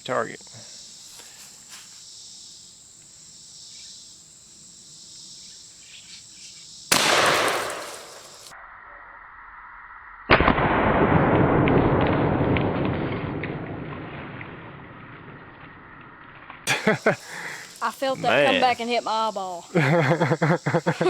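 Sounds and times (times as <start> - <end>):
insects chirring: 0.0 - 10.2, 16.7 - 21.0
shotgun blast: 6.9 - 8.5.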